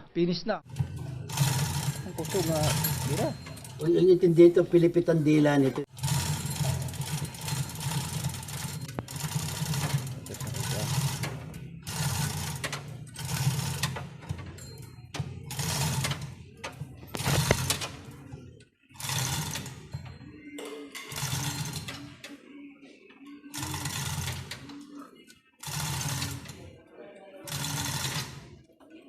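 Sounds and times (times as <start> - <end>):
hoist chain rattling: 0.7 - 4.7, 5.9 - 18.2, 19.0 - 20.3, 21.0 - 22.2, 23.5 - 24.7, 25.6 - 26.7, 27.5 - 28.6.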